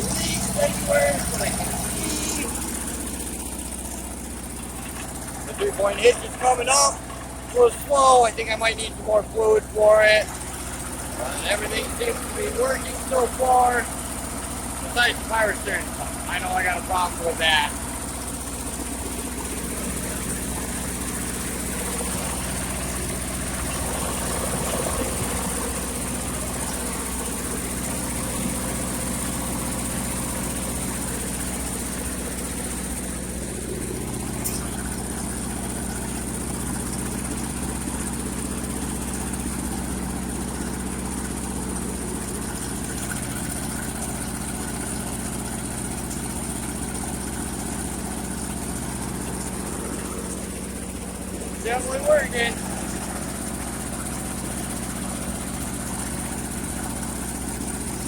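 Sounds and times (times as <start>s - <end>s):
tractor engine idling: 0.0s - 58.0s.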